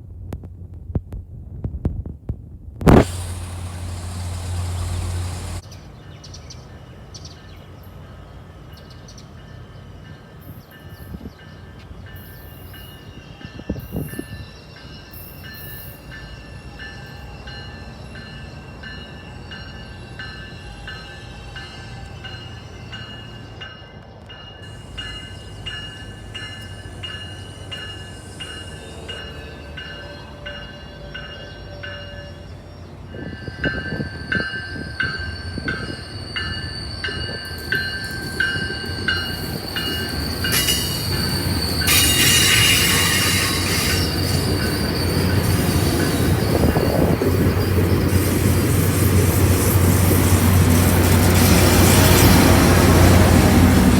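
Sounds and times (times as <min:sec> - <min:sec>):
freight train rumble: 0:00.0 - 0:53.9
high ringing tone: 0:24.7 - 0:48.1.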